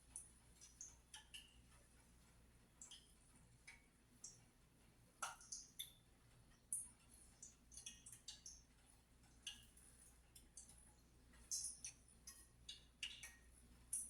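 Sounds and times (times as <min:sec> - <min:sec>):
hot oil crackling and popping: 0:05.2 - 0:08.7, 0:09.3 - 0:14.0.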